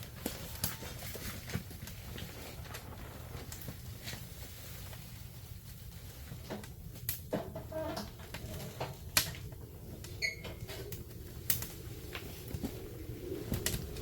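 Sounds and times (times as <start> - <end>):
fire crackling and popping: 0.0 - 14.0
low rumble: 8.1 - 14.0.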